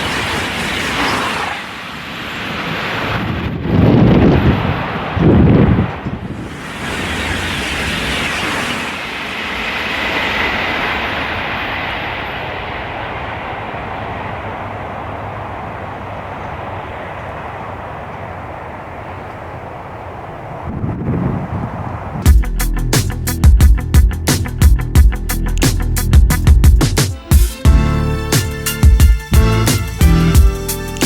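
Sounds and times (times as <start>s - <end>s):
high-speed train rushing past: 0.0s - 22.3s.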